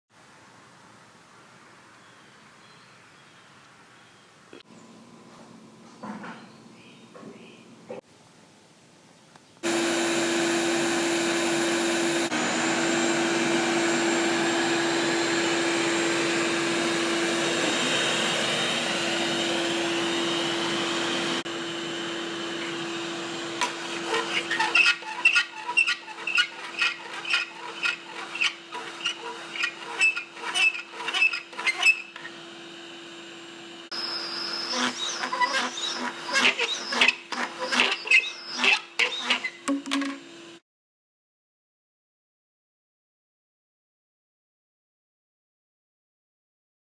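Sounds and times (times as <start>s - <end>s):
vacuum cleaner humming: 9.6s - 40.6s
high-pitched squeaks and chirps: 34.0s - 39.6s.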